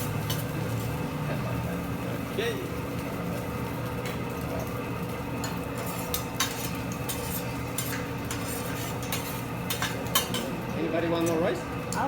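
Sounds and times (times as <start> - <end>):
metal utensils clinking: 0.0 - 0.9, 5.4 - 12.0.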